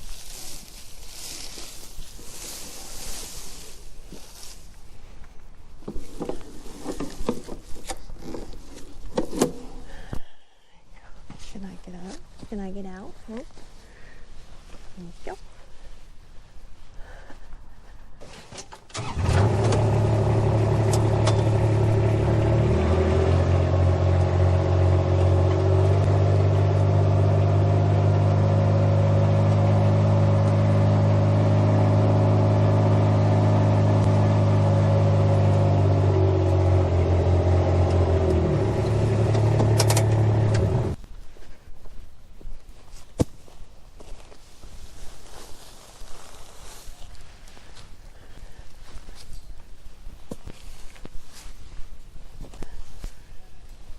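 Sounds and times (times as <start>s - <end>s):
engine running: 18.9s - 41.0s.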